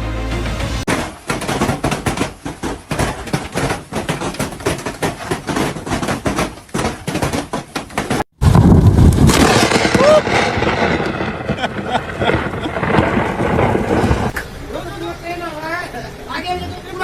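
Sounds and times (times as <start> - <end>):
knocks and clattering impacts: 0.8 - 14.4.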